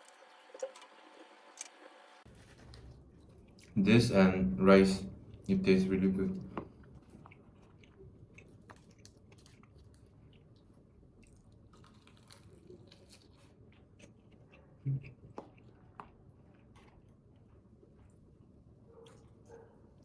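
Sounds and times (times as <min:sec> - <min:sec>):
person chewing: 0:02.3 - 0:03.8, 0:06.4 - 0:20.0.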